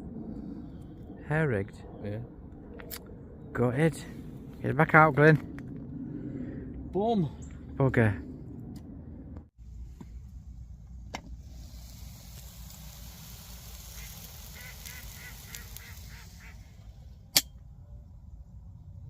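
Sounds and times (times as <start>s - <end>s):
waterfowl honking: 13.9s - 16.8s.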